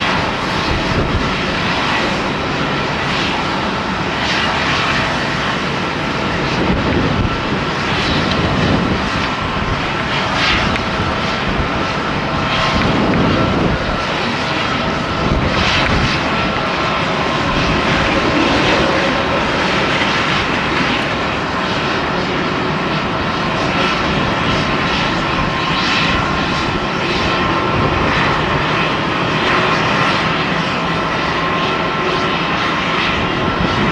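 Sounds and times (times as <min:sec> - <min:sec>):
jet engines at high power: 0:00.0 - 0:33.9
wind buffeting microphone: 0:00.0 - 0:33.9
high whining tones: 0:05.6 - 0:31.1.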